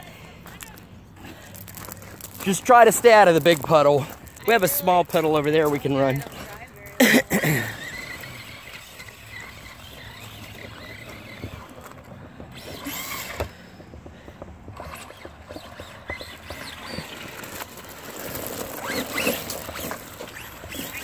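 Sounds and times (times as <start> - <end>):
clicks and noise in mud: 0.5 - 6.5, 14.8 - 21.0
electric motors whining: 1.6 - 14.1, 14.7 - 21.0.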